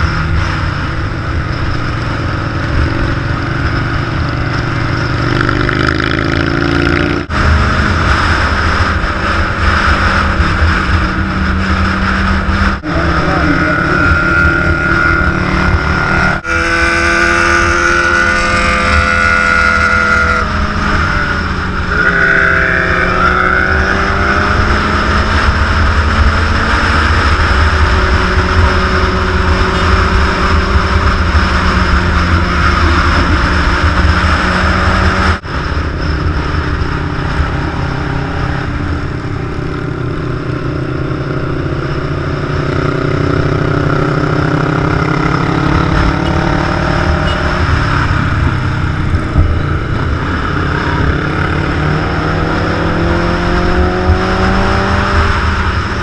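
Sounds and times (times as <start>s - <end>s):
motorcycle engines rumbling: 0.0s - 56.0s
pitched drone: 0.0s - 56.0s.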